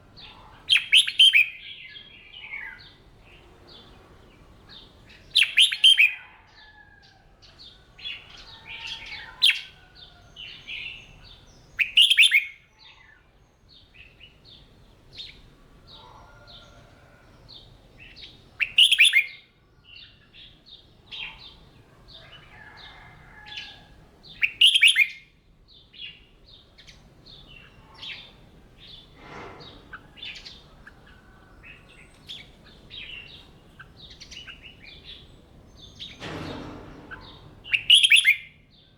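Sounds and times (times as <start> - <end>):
soft bird chirps: 37.0 - 38.9.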